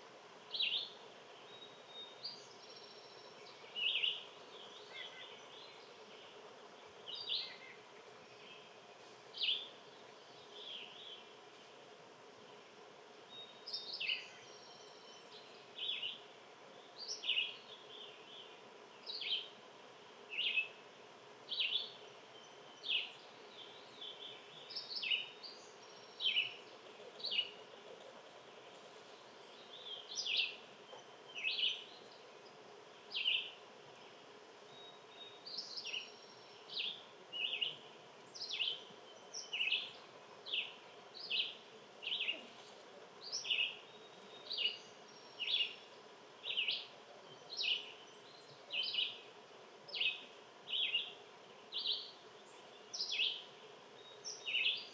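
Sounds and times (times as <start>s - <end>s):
bird chirping: 21.5s - 49.3s, 49.9s - 54.9s.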